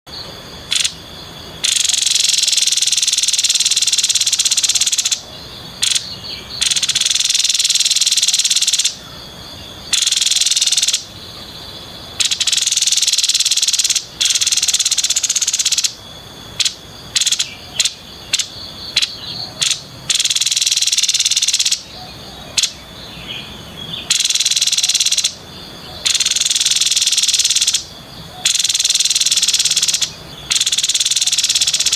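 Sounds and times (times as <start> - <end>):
bird giving harsh buzzing rattle: 0.7 - 1.0, 1.6 - 5.2.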